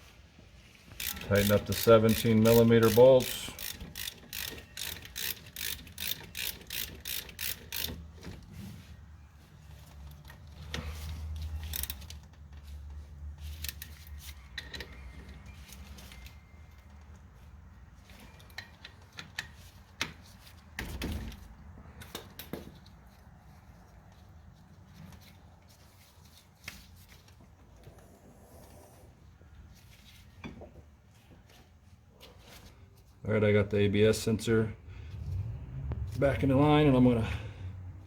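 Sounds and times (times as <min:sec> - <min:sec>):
ratchet wrench clicking: 0:00.9 - 0:08.2, 0:11.6 - 0:12.3
tool handling clicks and knocks: 0:18.0 - 0:23.3.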